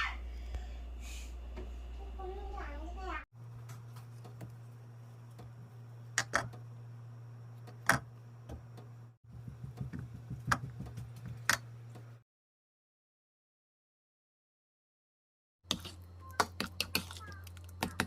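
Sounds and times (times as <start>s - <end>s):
low electrical hum: 0.0s - 12.2s.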